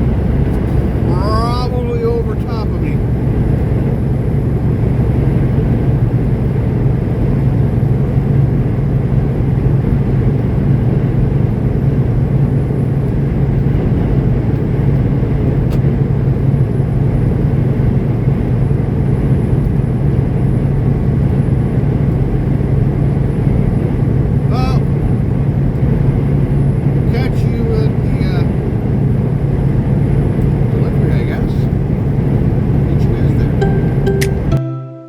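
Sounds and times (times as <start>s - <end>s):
road and wind noise: 0.0s - 34.6s
truck engine drone: 0.0s - 34.8s.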